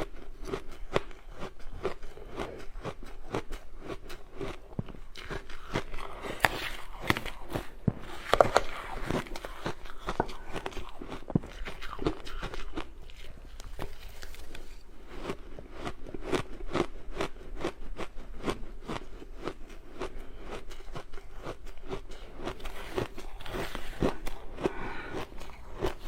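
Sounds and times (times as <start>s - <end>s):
ice being chewed: 0.0s - 26.0s.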